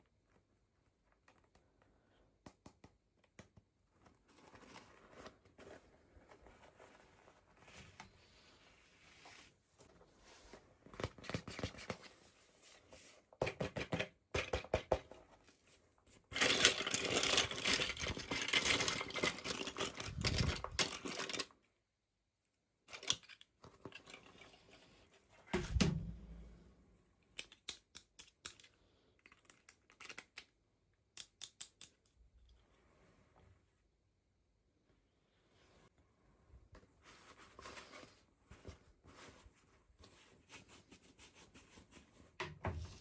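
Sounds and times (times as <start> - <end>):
small plastic clicks and taps: 2.4 - 3.7, 31.1 - 32.2.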